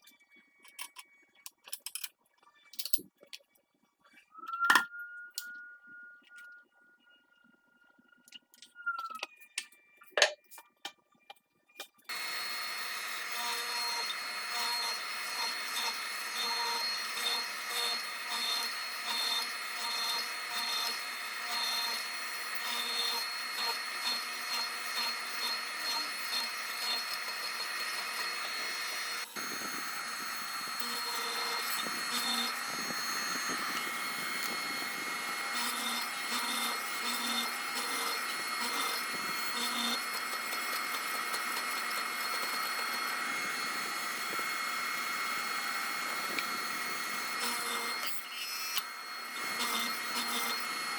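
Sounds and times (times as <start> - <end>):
electric woodworking power tool: 12.1 - 50.9.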